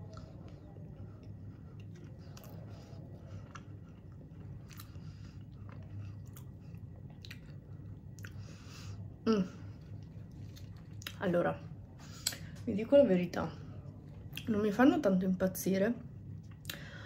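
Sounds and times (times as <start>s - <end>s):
woman chewing muffin: 0.0s - 12.6s
low hum: 0.0s - 17.0s.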